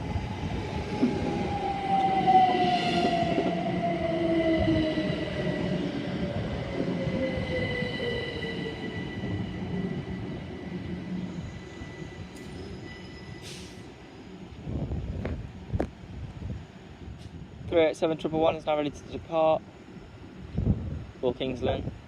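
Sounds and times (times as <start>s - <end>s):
high brake squeal: 11.4s - 14.0s.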